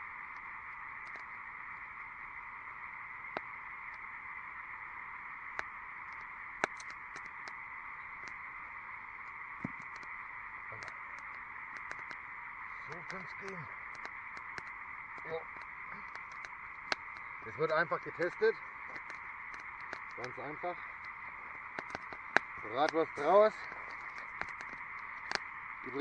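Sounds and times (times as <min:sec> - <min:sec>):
frogs trilling in chorus: 0:00.0 - 0:26.0
sharp snaps: 0:05.5 - 0:08.4, 0:09.6 - 0:26.0.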